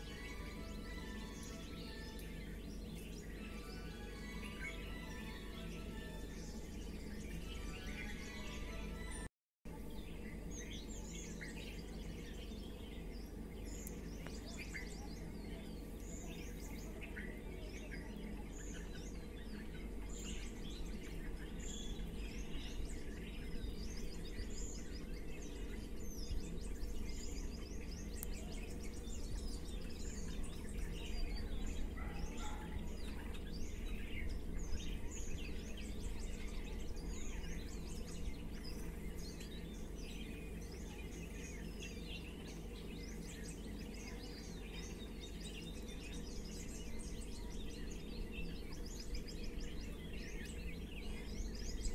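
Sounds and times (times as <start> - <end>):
low background rumble: 0.0 - 51.9
small birds chirping: 0.0 - 51.9.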